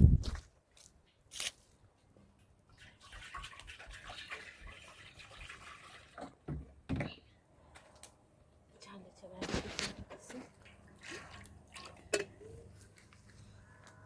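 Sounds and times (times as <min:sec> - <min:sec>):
water splashing and trickling: 0:02.3 - 0:06.9, 0:09.4 - 0:13.6.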